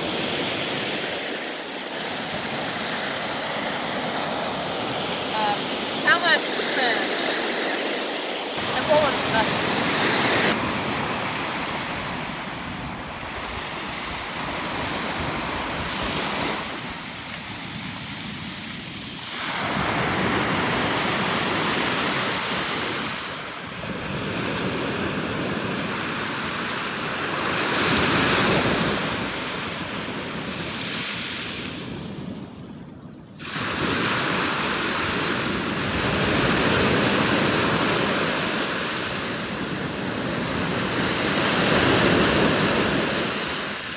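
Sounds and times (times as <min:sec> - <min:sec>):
surf breaking on shore: 0:00.0 - 0:23.5
wind on microphone: 0:00.0 - 0:26.4, 0:27.3 - 0:43.9.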